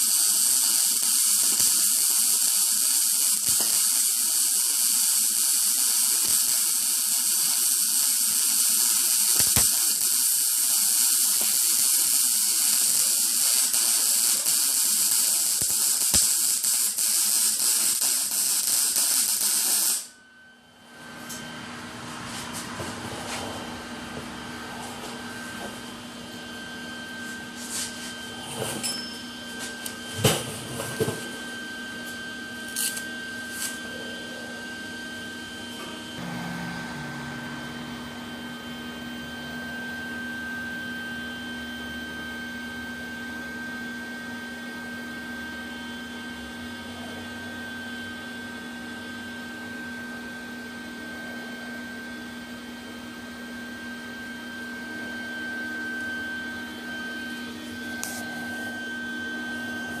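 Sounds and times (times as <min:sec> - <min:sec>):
steady motor hum: 0:31.4 - 1:00.0.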